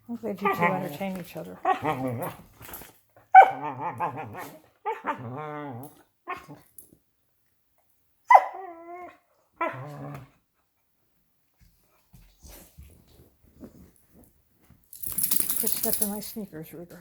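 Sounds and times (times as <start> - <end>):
dogs growling and moaning: 0.3 - 6.8, 8.4 - 10.4
dog whining cry: 3.3 - 6.6, 8.3 - 10.2.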